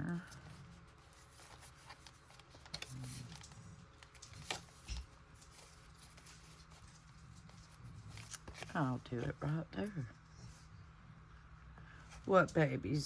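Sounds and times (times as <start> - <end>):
paper rustling: 0.1 - 9.6.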